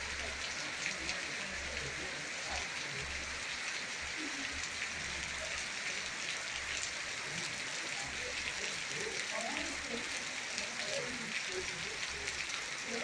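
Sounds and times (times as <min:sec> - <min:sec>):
rain pattering: 0:00.0 - 0:13.0.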